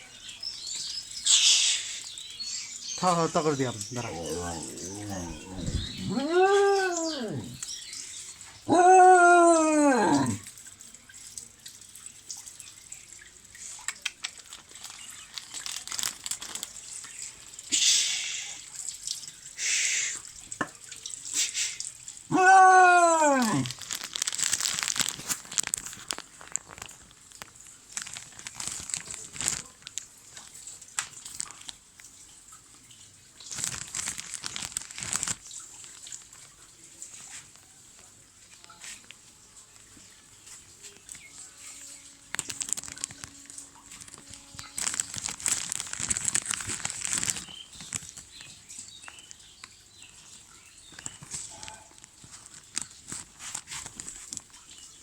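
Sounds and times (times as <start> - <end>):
rustling: 3.0 - 7.7, 22.3 - 26.9, 33.5 - 35.4, 41.4 - 48.2
pet animal crying: 3.6 - 7.6, 8.7 - 10.4, 22.3 - 23.8.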